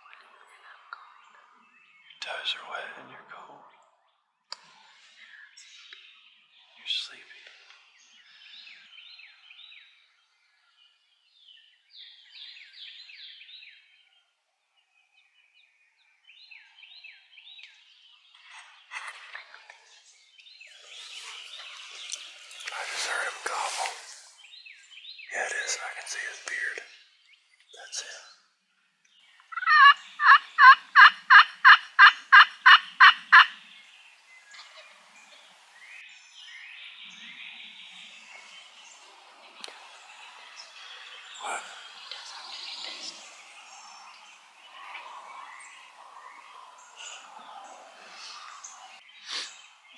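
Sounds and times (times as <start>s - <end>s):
turkey yelping: 29.5s - 33.6s.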